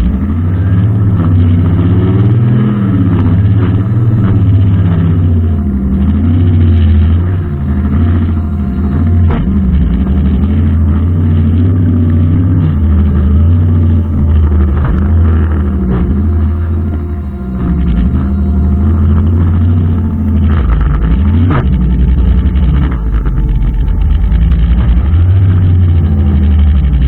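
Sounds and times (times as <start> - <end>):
brushcutter engine under load: 0.0 - 27.0.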